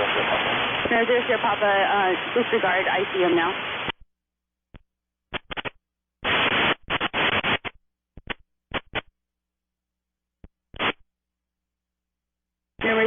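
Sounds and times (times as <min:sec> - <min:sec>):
radio static bursts: 0:05.3 - 0:09.1, 0:10.8 - 0:11.0.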